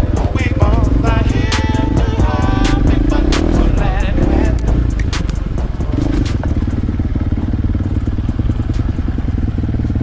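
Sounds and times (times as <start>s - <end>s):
dirt bike engine running: 0.0s - 10.0s
sharp clicks: 4.4s - 6.5s.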